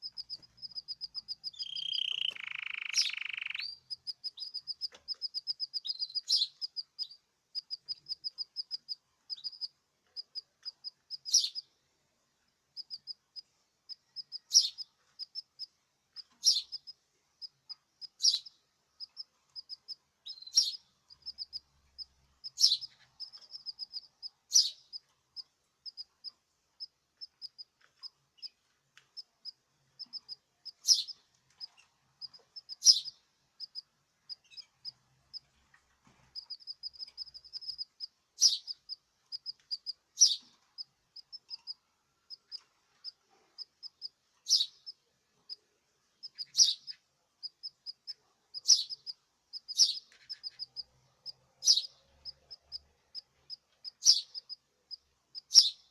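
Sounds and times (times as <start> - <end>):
sharp bird calls: 0.0 - 8.4, 18.2 - 25.0, 30.0 - 35.0, 36.4 - 40.5, 46.2 - 52.8, 53.9 - 54.6, 55.4 - 55.9
small songbirds chirping: 0.0 - 55.9.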